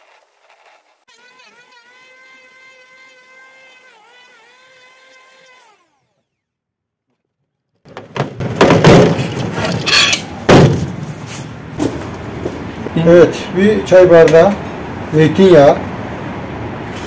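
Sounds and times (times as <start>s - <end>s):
electric hand tool motor whine: 0.0s - 6.7s
loud rough rustling and knocking: 7.8s - 12.7s.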